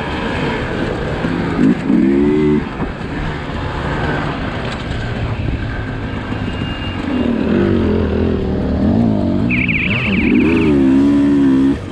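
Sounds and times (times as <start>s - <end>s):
two-stroke motorcycle engine revving: 1.2s - 2.8s, 6.1s - 11.9s.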